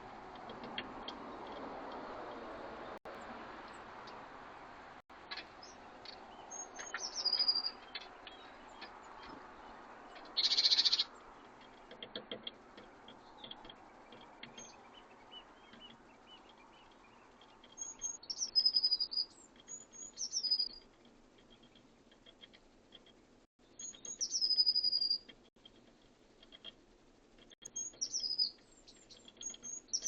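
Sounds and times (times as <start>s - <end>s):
bird chips and ticks: 0.0s - 2.6s, 5.2s - 30.0s
high whistled birdsong: 5.5s - 11.2s, 13.1s - 20.8s, 23.6s - 25.3s, 27.6s - 30.0s
fast bird trill: 6.5s - 8.6s, 10.3s - 11.1s, 17.8s - 20.8s, 23.8s - 25.2s, 27.7s - 30.0s.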